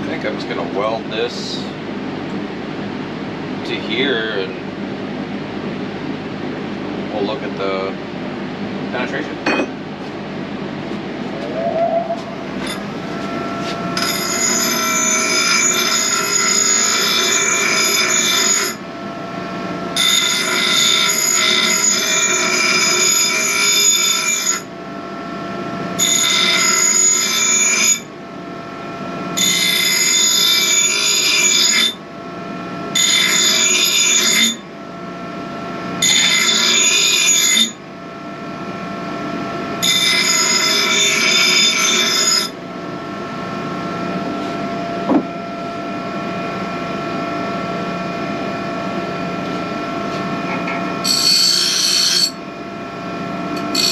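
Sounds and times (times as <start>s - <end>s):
arc welder buzzing: 11.2s - 24.7s, 32.9s - 34.7s, 36.0s - 37.8s, 43.9s - 53.9s.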